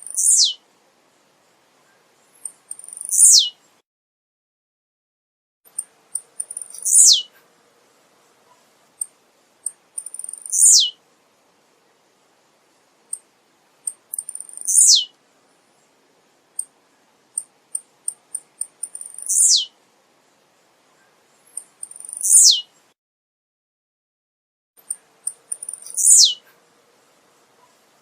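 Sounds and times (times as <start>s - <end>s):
bird singing: 0.0s - 0.6s, 1.8s - 3.7s, 5.7s - 7.3s, 9.7s - 11.0s, 13.9s - 15.2s, 16.6s - 19.8s, 21.0s - 22.8s, 24.8s - 26.5s.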